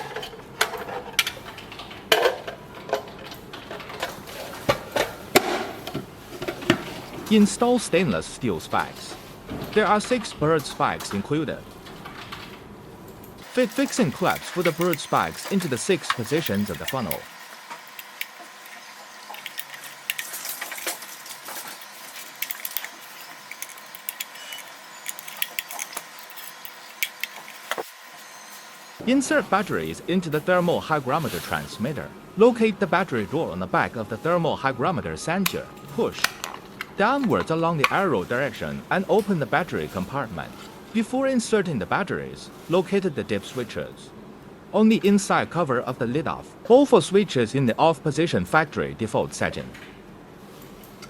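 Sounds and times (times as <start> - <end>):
hard plastic parts clicking: 13.4 - 27.9.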